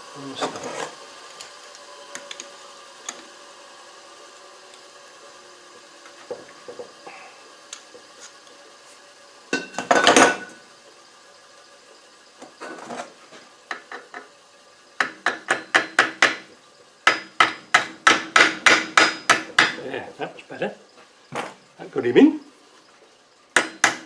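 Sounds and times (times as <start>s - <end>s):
hammer tapping steel punch: 15.0s - 16.4s, 17.1s - 19.8s, 23.6s - 24.0s.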